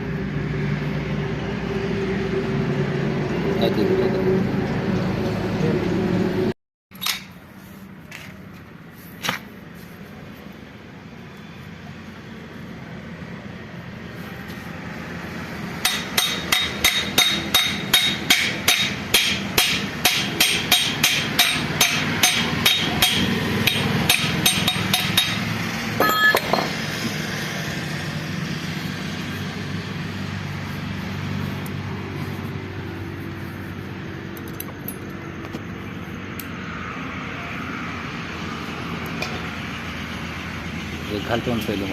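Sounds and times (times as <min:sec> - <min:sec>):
hammer striking metal: 0:15.8 - 0:27.2.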